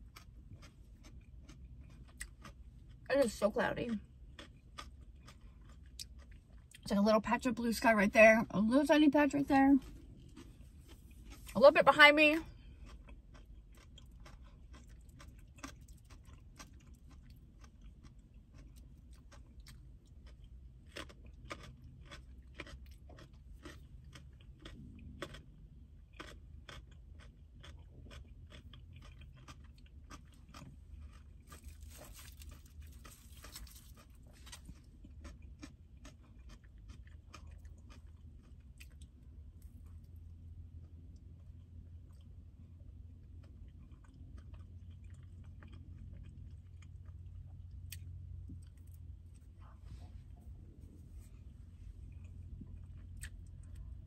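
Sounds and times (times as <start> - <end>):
crunchy chewing of carrots: 0.0 - 54.0.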